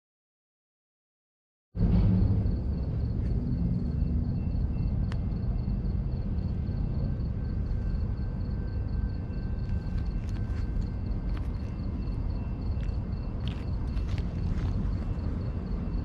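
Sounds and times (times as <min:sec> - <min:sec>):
low rumble of passing train: 0:01.8 - 0:16.0.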